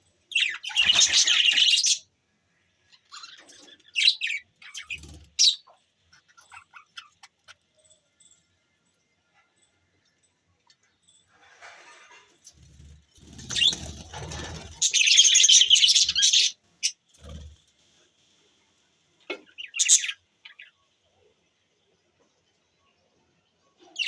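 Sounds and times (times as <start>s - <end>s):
budgerigars chirping and chattering: 0.3s - 2.1s, 2.9s - 8.3s, 13.2s - 17.5s, 19.3s - 20.8s.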